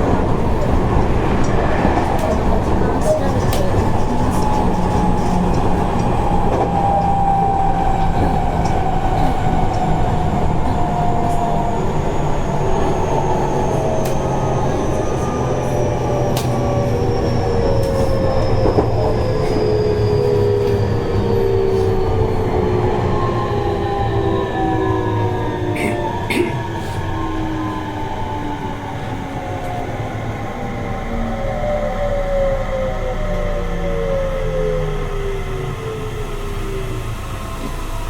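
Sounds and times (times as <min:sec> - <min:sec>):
train rumbling on rails: 0:00.0 - 0:38.0.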